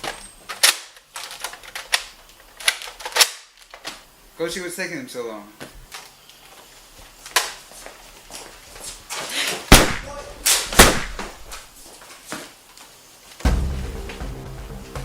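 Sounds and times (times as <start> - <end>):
knocks and bangs: 13.5 - 15.0.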